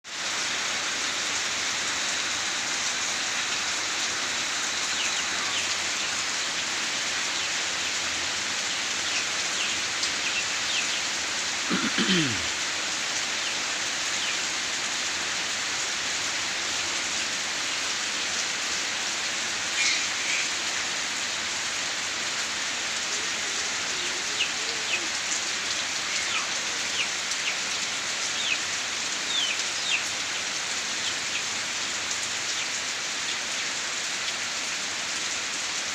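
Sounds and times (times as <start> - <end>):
rain splashing on surfaces: 0.0 - 35.9.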